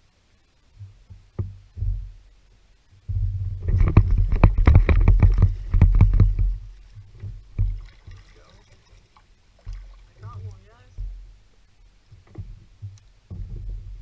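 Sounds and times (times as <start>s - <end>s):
heavy low rumble: 3.0s - 7.8s
kayak thumps and knocks: 3.1s - 8.4s, 9.6s - 11.4s, 12.2s - 14.0s.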